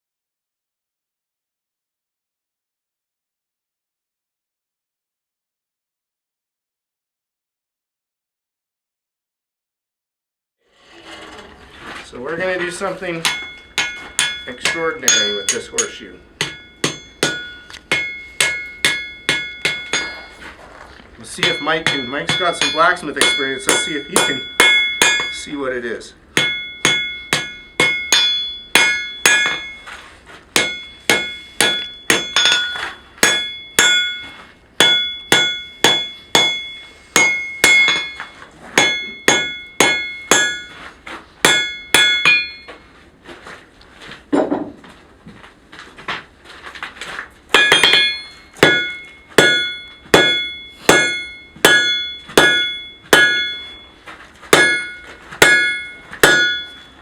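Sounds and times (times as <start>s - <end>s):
hammer ringing on anvil: 13.1s - 20.4s, 21.2s - 25.6s, 26.4s - 30.0s, 30.6s - 42.8s, 47.5s - 57.0s.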